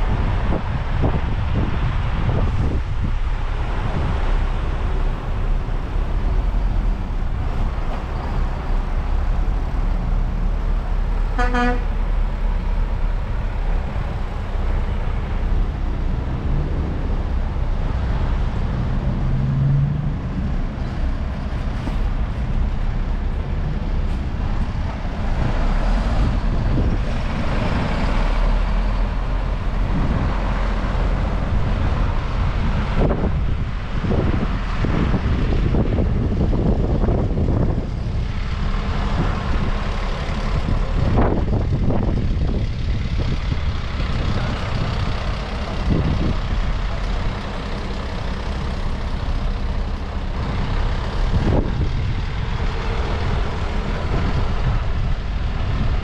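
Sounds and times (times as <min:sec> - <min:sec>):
truck engines rumbling: 0:00.0 - 0:56.0
wind buffeting microphone: 0:00.0 - 0:56.0
horn toot: 0:11.3 - 0:12.0.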